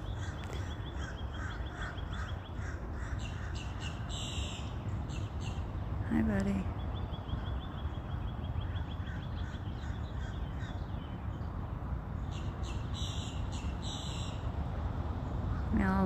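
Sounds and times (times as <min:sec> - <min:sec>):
harsh raspy bird calls: 0:00.0 - 0:05.6, 0:07.1 - 0:10.9, 0:12.3 - 0:14.4
birds chipping: 0:00.0 - 0:15.8.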